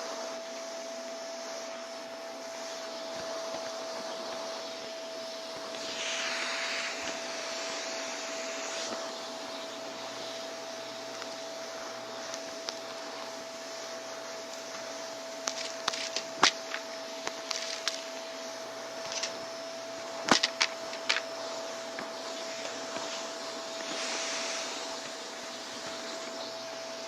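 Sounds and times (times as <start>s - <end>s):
vacuum cleaner running: 0.0s - 27.0s
debris clicking and crackling: 15.4s - 18.1s.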